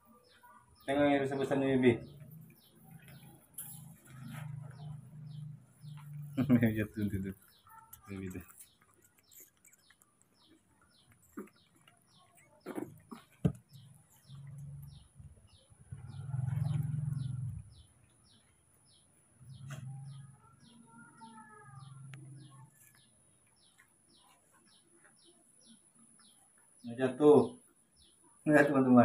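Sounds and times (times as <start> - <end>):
bird chirping: 0.0 - 29.0.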